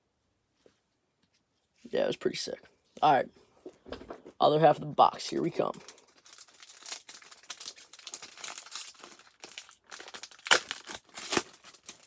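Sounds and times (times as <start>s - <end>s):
foil wrappers crinkling: 5.6s - 12.0s
foil wrapper ripping: 5.9s - 12.0s.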